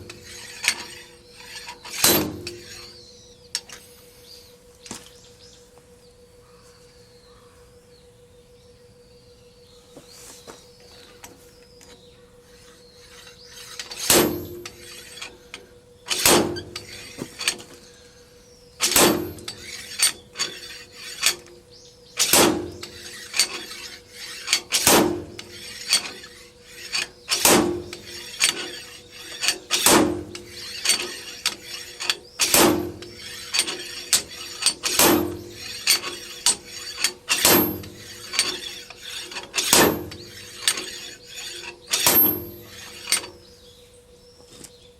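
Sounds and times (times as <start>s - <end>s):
hammer striking metal: 1.9s - 2.9s, 13.8s - 15.3s, 18.8s - 21.4s, 22.2s - 43.3s.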